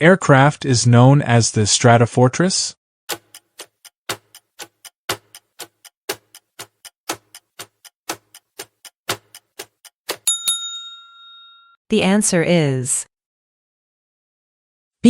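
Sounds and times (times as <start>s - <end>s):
clock-like ticking: 3.1s - 10.2s.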